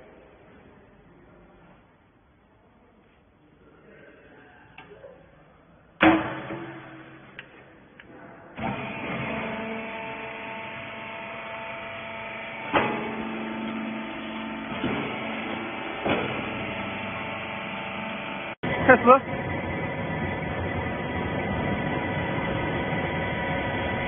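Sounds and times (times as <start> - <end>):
loud metal clank: 6.0 - 7.5
baler machine humming: 8.6 - 24.0
machine knocks: 12.7 - 17.0.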